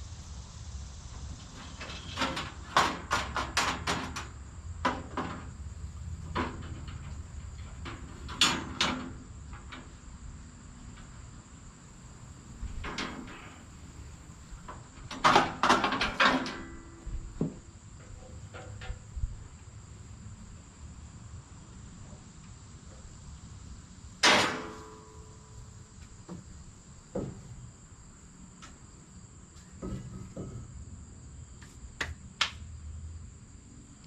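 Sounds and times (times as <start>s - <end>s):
sharp knocks and clattering: 1.5s - 10.1s, 12.6s - 19.4s, 24.2s - 27.8s, 29.6s - 30.9s.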